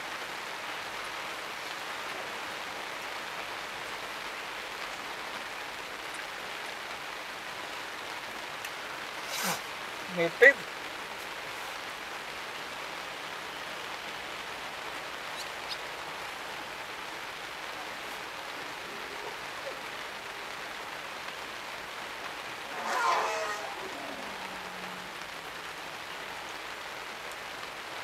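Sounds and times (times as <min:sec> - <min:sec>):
rain falling: 0:00.0 - 0:28.0
brief pitched call: 0:22.6 - 0:25.3.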